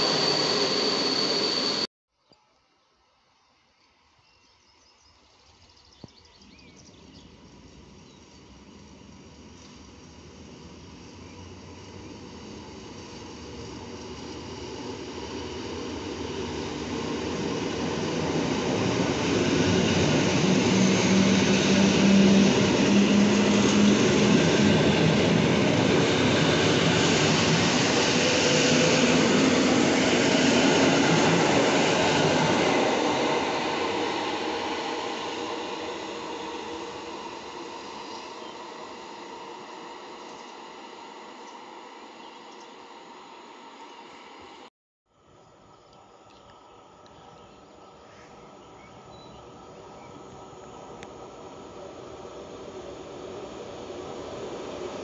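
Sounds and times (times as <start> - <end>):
electric train passing at speed: 0.0 - 1.9, 3.2 - 46.2, 46.8 - 55.0.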